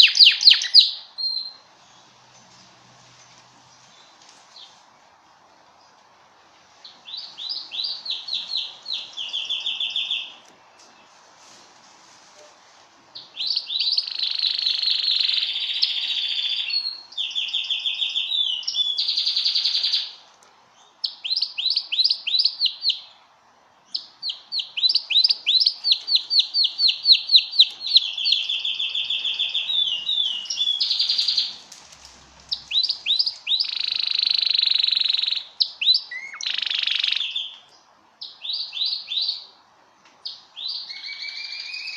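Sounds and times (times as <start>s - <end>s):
canary singing trills: 0.0s - 2.3s, 6.8s - 10.5s, 13.2s - 20.2s, 23.9s - 39.6s, 40.2s - 41.9s.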